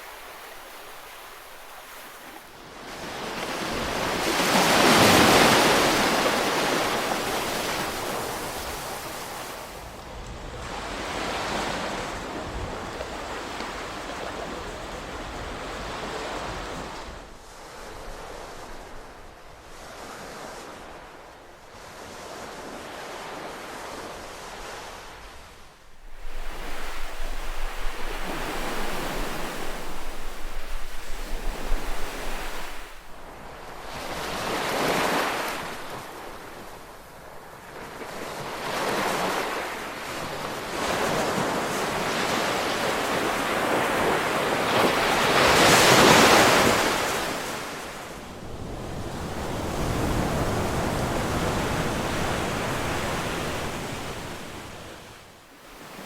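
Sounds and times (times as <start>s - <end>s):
ocean waves breaking: 0.0s - 56.0s
wind gusting on microphone: 3.5s - 21.0s, 24.6s - 37.4s.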